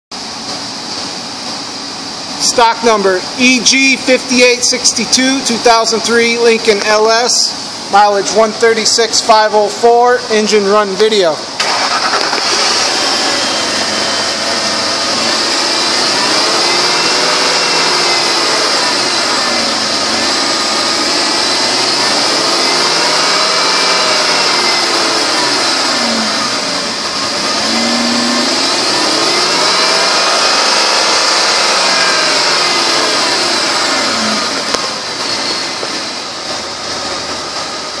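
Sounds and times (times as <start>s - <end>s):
steady high whine: 0.2s - 38.0s
car engine running: 10.7s - 38.0s.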